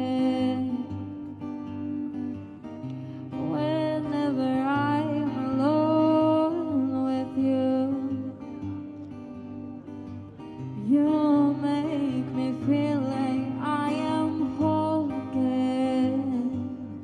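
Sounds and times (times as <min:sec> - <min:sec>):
guitar accompaniment: 0:00.0 - 0:17.0.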